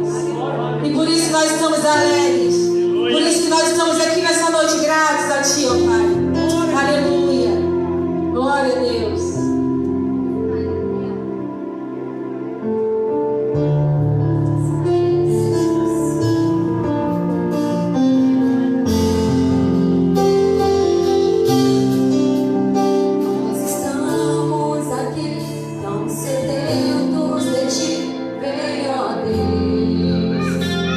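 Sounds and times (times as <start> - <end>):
bass: 0.0 - 30.9
people singing: 23.6 - 30.9.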